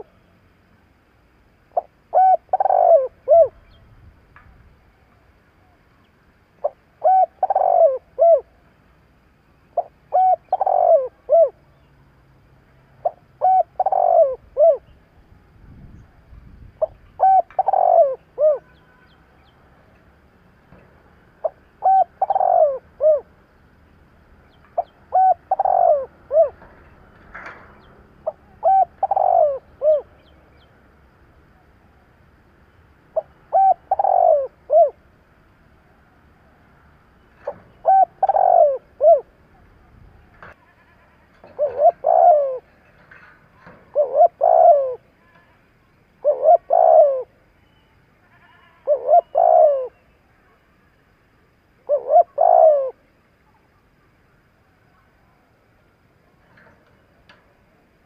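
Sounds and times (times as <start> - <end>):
dove cooing: 1.7 - 3.7, 6.6 - 8.6, 9.8 - 11.6, 13.0 - 14.9, 16.8 - 18.8, 21.4 - 23.4, 24.8 - 26.8, 27.4 - 30.3, 33.2 - 35.0, 37.4 - 40.5, 41.4 - 45.1, 46.2 - 47.4, 48.8 - 50.1, 51.8 - 53.1.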